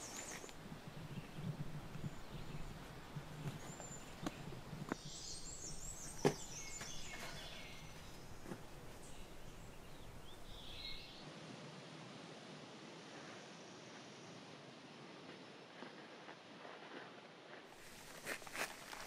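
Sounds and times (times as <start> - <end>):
songbird chirping: 0.0 - 11.3.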